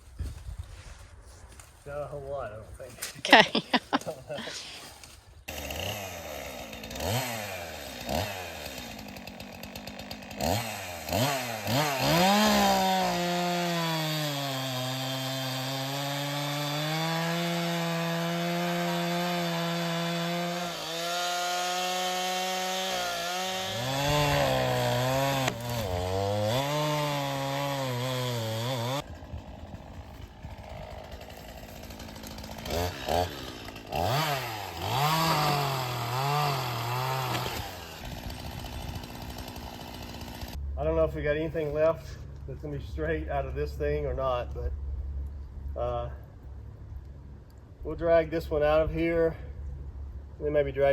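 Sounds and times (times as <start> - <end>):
chainsaw revving and cutting wood: 3.2 - 40.6.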